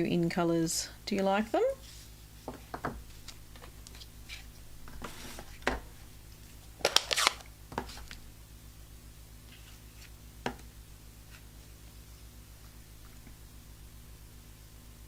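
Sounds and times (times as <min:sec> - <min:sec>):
paper rustling: 0:01.8 - 0:08.2.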